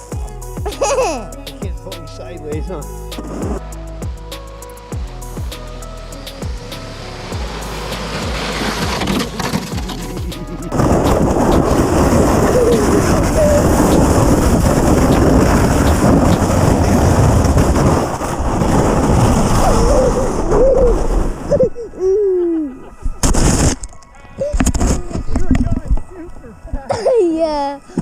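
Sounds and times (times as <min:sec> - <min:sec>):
sled rumbling over snow: 0:07.2 - 0:21.8.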